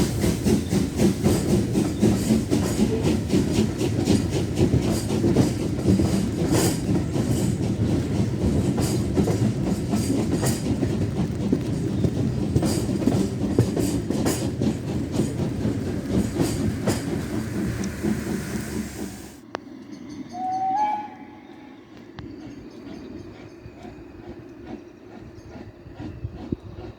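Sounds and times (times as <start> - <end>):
wheels clicking over rail joints: 0.0 - 20.0
train rumbling past: 0.0 - 26.9.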